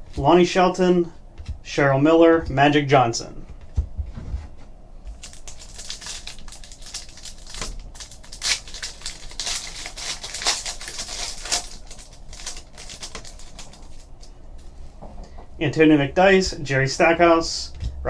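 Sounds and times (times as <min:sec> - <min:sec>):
card pack wrapper crinkling and tearing: 0:05.1 - 0:14.3.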